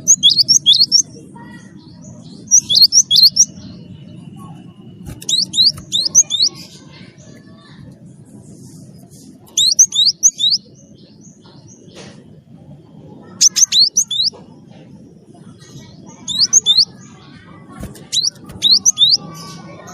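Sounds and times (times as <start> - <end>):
bird whistling song: 0.0 - 1.2, 2.3 - 6.6, 9.5 - 10.8, 13.2 - 14.4, 16.2 - 17.0, 17.9 - 19.6
low background rumble: 0.0 - 19.9.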